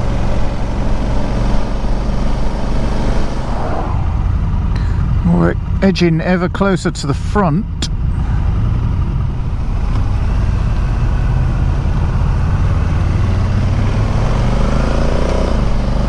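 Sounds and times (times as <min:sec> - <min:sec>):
motorcycle engine accelerating: 0:00.0 - 0:05.8, 0:08.4 - 0:16.0
wind rumble on microphone: 0:00.0 - 0:05.8.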